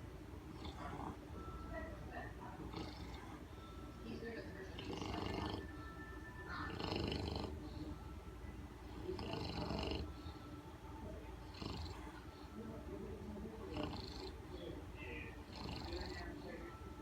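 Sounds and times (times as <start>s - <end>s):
dog snoring loudly: 0.4s - 1.2s, 2.6s - 3.5s, 4.8s - 5.7s, 6.6s - 7.7s, 8.9s - 10.2s, 11.4s - 12.5s, 13.6s - 14.5s, 15.4s - 16.4s.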